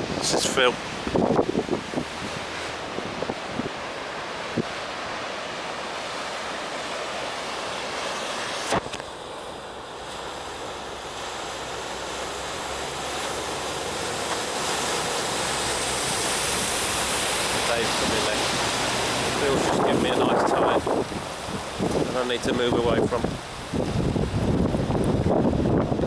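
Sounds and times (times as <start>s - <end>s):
vehicle pushing wave of water: 0.0s - 8.9s, 9.6s - 26.0s
rushing floodwater: 0.0s - 26.0s.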